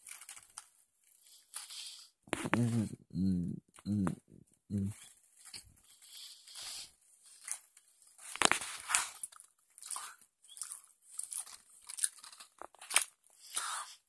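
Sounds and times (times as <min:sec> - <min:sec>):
crunchy chewing of sandwich: 0:05.9 - 0:14.0.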